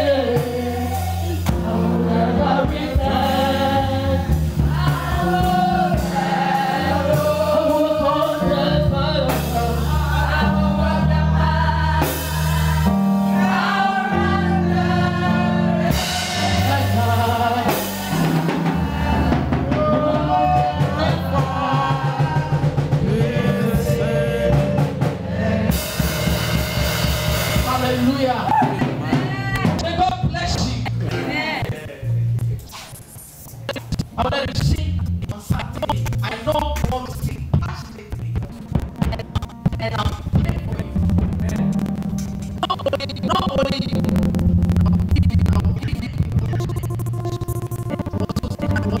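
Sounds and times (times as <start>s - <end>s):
choir singing gospel refrain: 0.0s - 29.5s
bass and drums: 0.0s - 49.0s.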